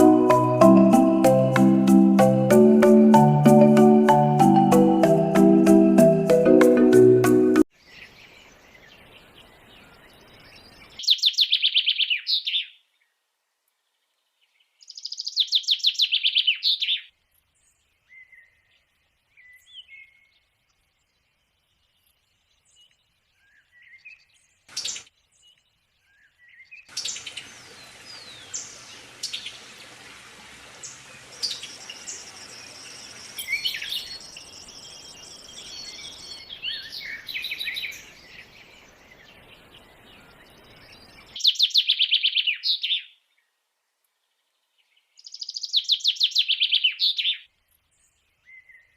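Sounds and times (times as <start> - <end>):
birds chirping: 0.0 - 12.8, 14.3 - 43.2
background hiss: 17.1 - 46.6.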